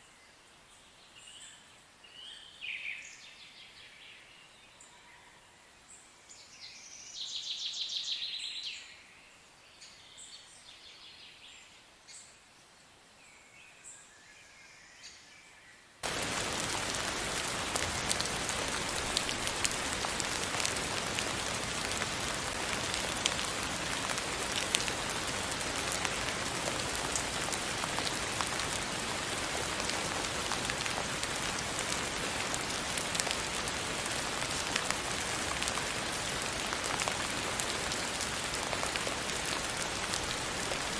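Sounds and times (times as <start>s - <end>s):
raindrops ticking: 16.0s - 40.9s
steady rain: 16.0s - 40.9s.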